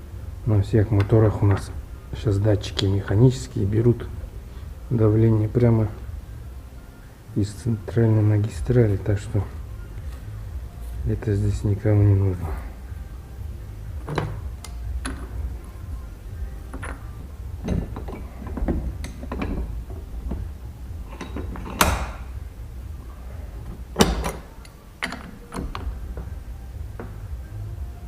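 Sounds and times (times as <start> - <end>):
metal parts clicking and knocking: 14.0 - 15.8, 16.6 - 22.4, 23.5 - 27.4.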